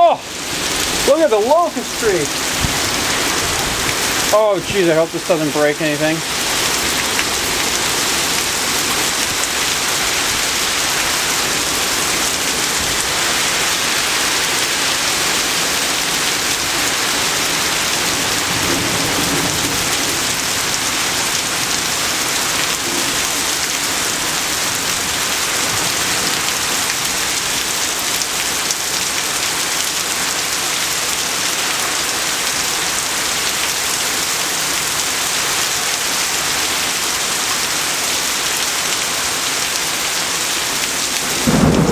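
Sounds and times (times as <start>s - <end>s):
heavy rain pouring: 0.0s - 41.9s
thunder rumble: 18.0s - 22.0s, 41.3s - 41.9s.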